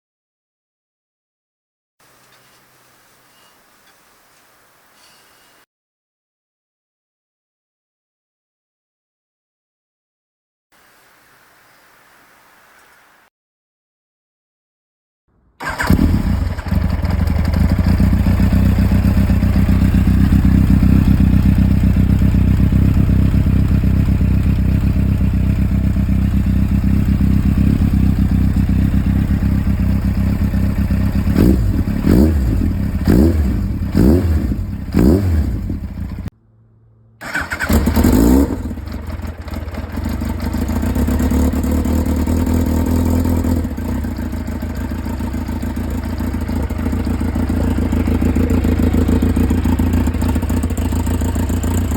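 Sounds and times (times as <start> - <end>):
motorcycle engine idling and revving: 15.6 - 51.9.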